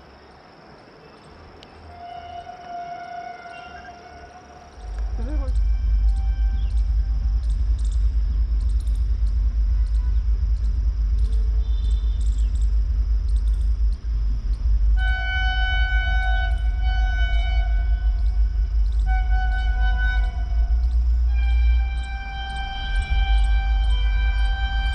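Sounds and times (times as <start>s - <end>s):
multi-tone train horn: 1.8s - 7.3s, 14.9s - 24.9s
train rushing past: 1.8s - 24.9s.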